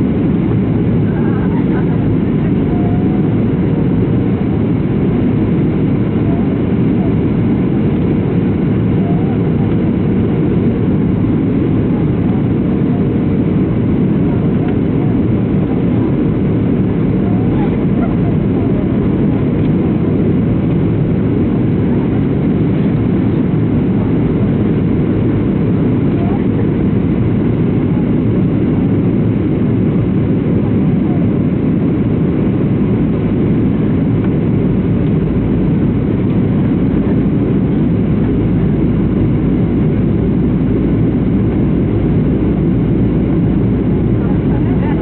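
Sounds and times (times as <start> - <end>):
airplane cabin engine roar: 0.0 - 45.0.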